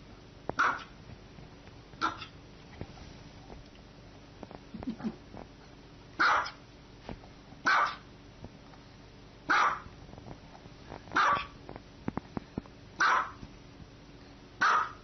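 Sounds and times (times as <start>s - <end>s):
dog barking: 0.6s - 1.0s, 2.0s - 2.3s, 6.2s - 6.6s, 7.6s - 8.1s, 9.5s - 9.9s, 11.2s - 11.6s, 13.0s - 13.4s, 14.6s - 15.0s.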